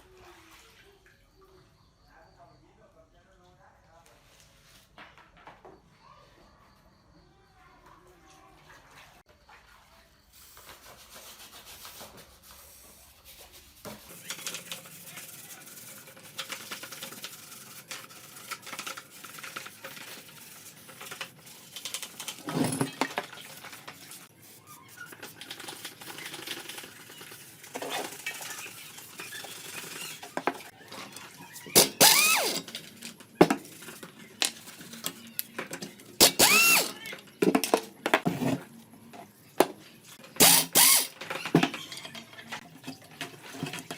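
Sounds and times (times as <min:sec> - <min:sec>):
hand tools clicking and scraping metal: 0:13.8 - 0:43.9
loud short squeaks: 0:31.4 - 0:32.7, 0:36.2 - 0:37.1, 0:40.4 - 0:42.1.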